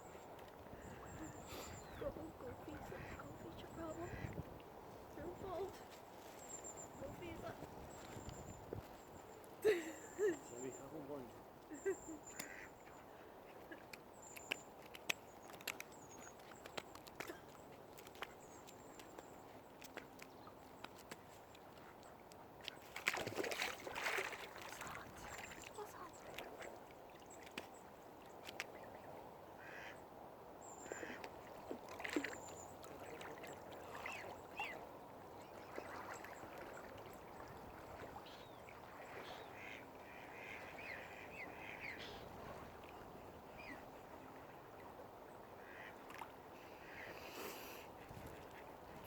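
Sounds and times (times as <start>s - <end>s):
waterfowl calling: 0.8s - 4.4s, 11.7s - 13.9s, 29.6s - 30.0s, 30.6s - 34.8s, 35.4s - 43.8s, 45.6s - 47.8s.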